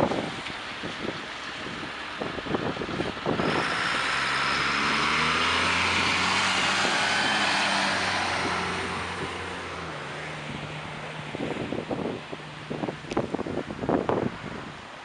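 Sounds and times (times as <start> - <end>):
vehicle driving past: 3.4 - 12.8.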